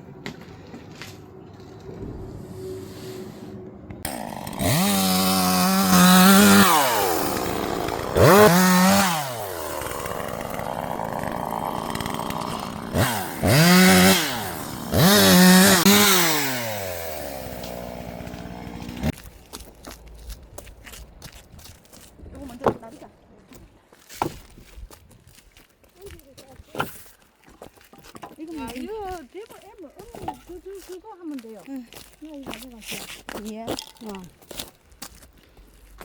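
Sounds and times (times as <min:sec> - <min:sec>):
chainsaw engine revving: 0:04.0 - 0:19.2.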